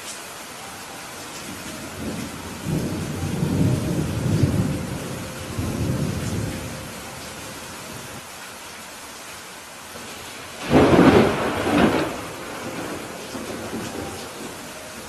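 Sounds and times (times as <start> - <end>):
steady rain hiss: 0.0 - 15.0
thunder rolling: 1.5 - 8.2, 10.6 - 14.7.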